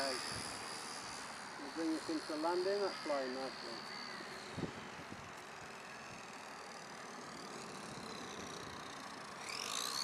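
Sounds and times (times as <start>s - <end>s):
model plane motor whine: 0.0s - 10.0s
wind hiss: 0.0s - 10.0s.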